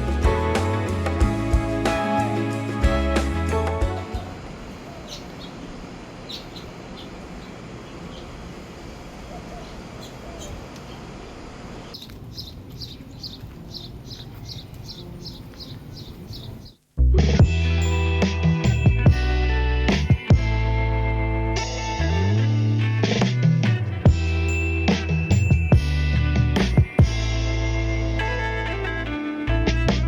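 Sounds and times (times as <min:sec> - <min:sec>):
outdoor background noise: 0:00.0 - 0:30.0
small bird chirping: 0:04.9 - 0:08.4, 0:11.9 - 0:16.9.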